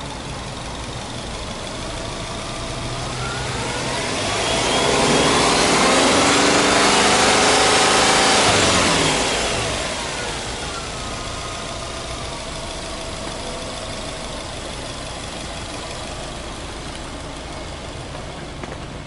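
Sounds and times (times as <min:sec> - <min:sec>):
car engine idling after rev: 0:00.0 - 0:19.0.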